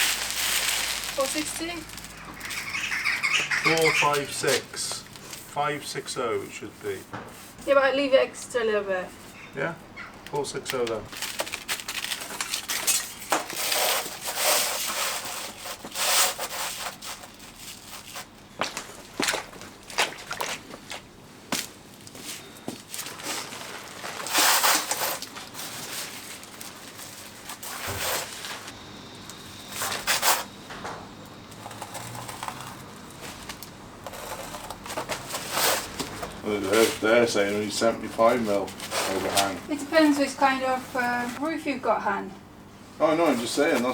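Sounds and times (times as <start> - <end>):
roofing felt rustling and scraping: 0.0 - 8.1, 31.6 - 41.5.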